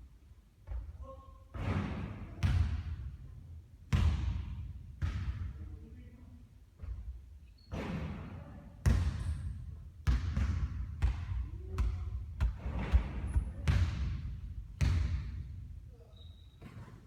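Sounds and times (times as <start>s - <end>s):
basketball bouncing on a court: 1.7s - 3.2s, 3.9s - 5.7s, 8.8s - 15.7s.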